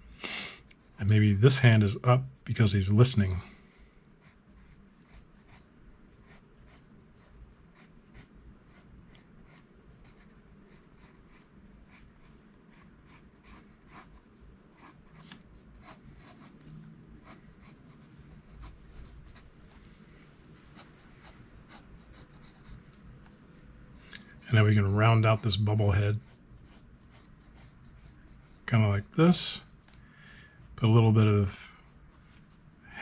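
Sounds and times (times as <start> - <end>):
pencil scratching on paper: 4.2 - 15.2, 15.8 - 16.6, 17.2 - 19.5, 20.8 - 22.8, 24.8 - 28.7.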